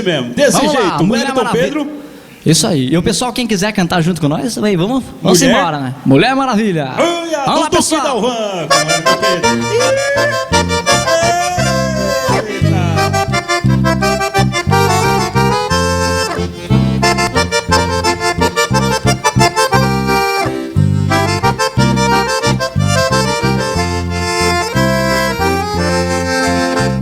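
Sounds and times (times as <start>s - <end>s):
accordion-led band music: 8.6s - 27.0s
pulsing bass beat: 10.5s - 25.9s.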